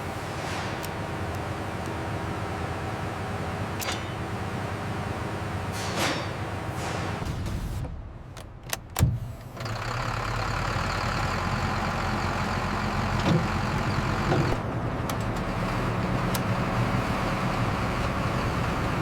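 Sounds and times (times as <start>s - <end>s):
large engine idling: 9.2s - 19.0s.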